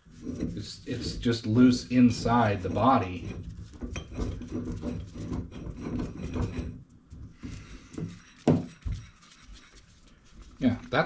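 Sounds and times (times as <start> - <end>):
metal parts clunking and rubbing: 0.0 - 6.9.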